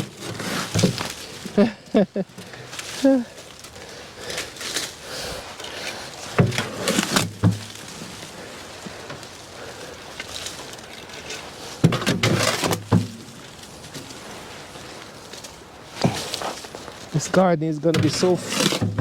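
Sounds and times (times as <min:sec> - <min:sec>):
knocks and thuds: 0:00.7 - 0:01.1, 0:06.4 - 0:07.8, 0:11.8 - 0:13.3, 0:17.9 - 0:19.0.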